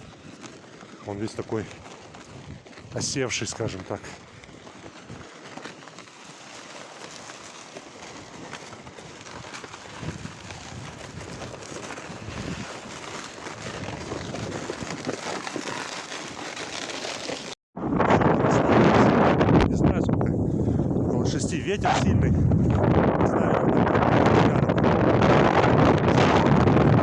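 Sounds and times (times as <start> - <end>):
footsteps on crusted snow: 0.0 - 17.6, 20.3 - 22.9
wind blowing on microphone: 10.0 - 12.7, 13.6 - 15.2, 17.8 - 27.0.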